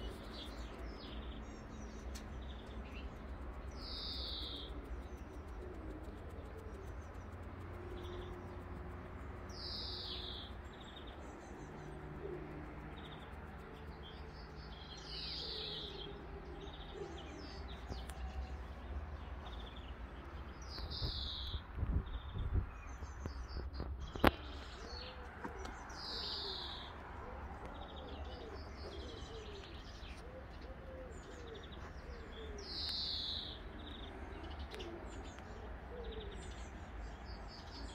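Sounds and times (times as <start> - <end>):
steady low rumble: 0.0 - 29.2
pigeon cooing: 4.6 - 8.4, 11.8 - 13.8, 15.3 - 17.7, 24.3 - 32.8, 33.4 - 36.6.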